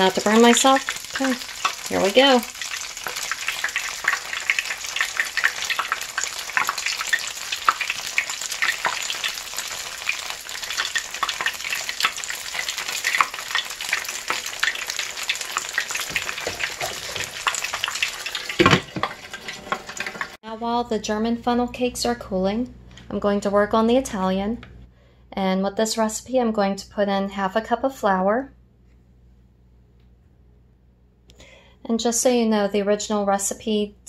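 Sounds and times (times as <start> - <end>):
batter frying in oil: 0.0 - 20.4.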